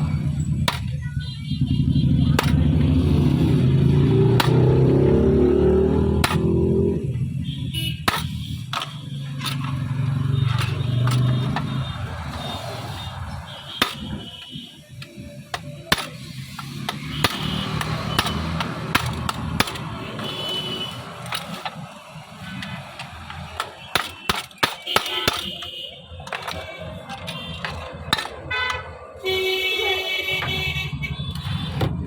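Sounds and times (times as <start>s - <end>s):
metal tool clicks and taps: 4.1s - 4.9s, 6.1s - 6.6s, 8.0s - 14.2s, 15.0s - 28.9s.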